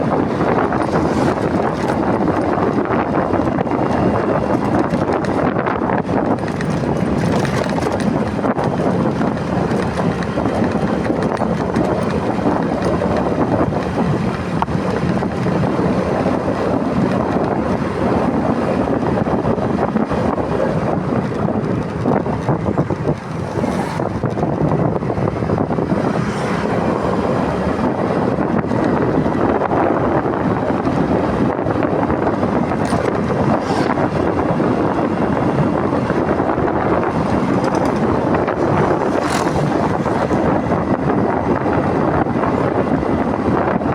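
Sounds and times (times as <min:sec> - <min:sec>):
motorcycle engine running: 0:00.0 - 0:43.9
wind buffeting microphone: 0:00.0 - 0:43.9.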